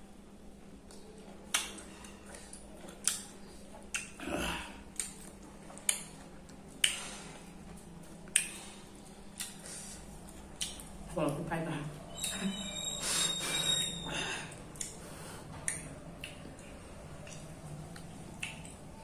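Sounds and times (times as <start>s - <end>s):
mouth clicks and smacks while chewing: 0.8s - 4.2s, 4.9s - 11.1s, 14.5s - 19.0s.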